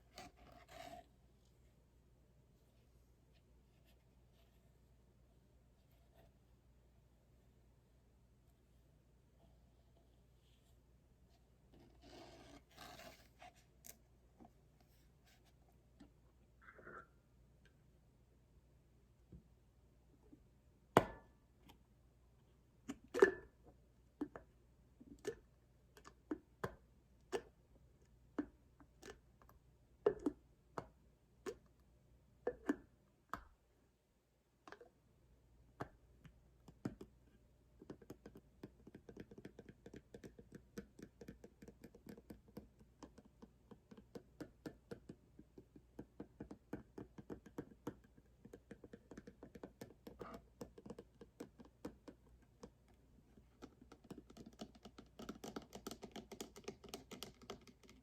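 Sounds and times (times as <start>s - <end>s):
fingers tapping on cardboard box: 37.8s - 52.8s, 53.6s - 58.0s.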